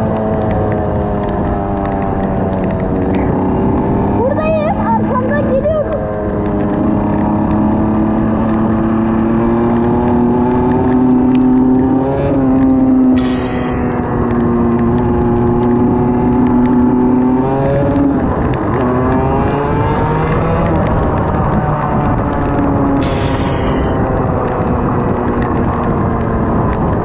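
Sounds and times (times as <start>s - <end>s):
motor engine humming: 0.0s - 27.0s
short high-pitched sound: 13.2s - 14.2s, 23.0s - 24.4s.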